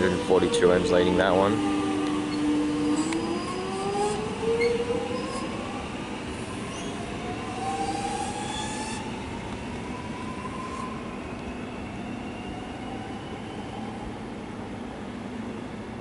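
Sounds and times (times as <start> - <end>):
electric train drive whining: 0.0 - 11.6
train rumble: 0.0 - 16.0.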